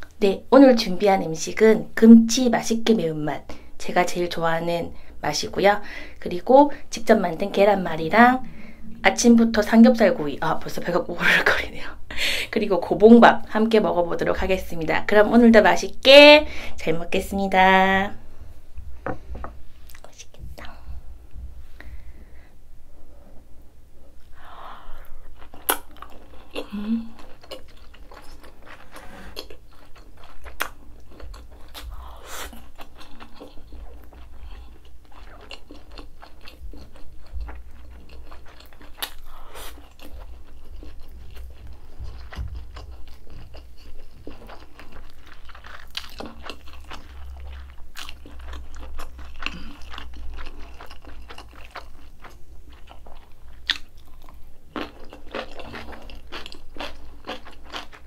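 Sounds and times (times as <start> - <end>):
chewing and crunching food: 24.8 - 58.0
wet mouth clicks: 25.6 - 26.0.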